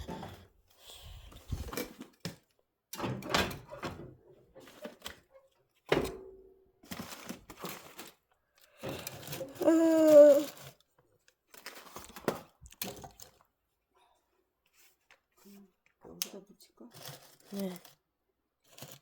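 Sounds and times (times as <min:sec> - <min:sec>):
objects knocking and thunking: 0:00.0 - 0:08.1.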